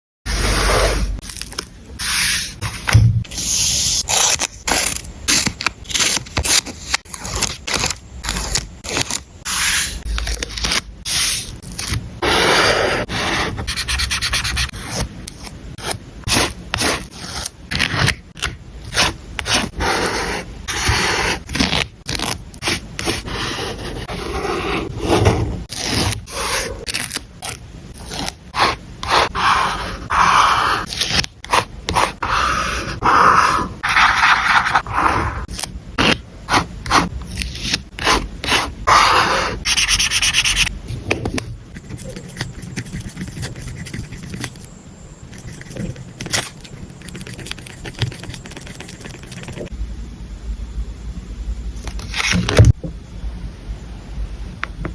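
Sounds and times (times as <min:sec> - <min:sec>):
paper scraping and rubbing: 0:00.3 - 0:18.2, 0:18.9 - 0:40.7, 0:41.7 - 0:44.7, 0:45.3 - 0:49.7
rasping on paper: 0:41.7 - 0:44.6, 0:45.3 - 0:49.7.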